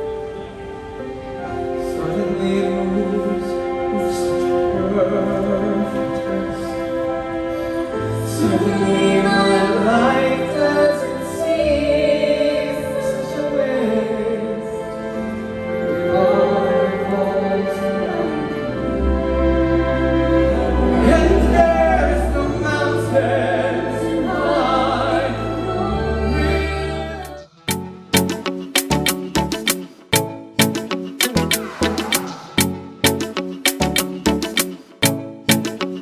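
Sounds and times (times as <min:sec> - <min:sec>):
instrumental accompaniment: 0:27.3 - 0:36.0.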